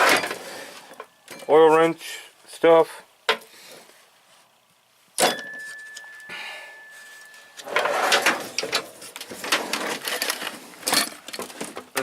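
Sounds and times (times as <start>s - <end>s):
metal drawer clanking shut: 0.0s - 0.4s, 7.7s - 10.0s
tools rattling: 7.1s - 12.0s
drawer sliding open: 7.6s - 11.5s.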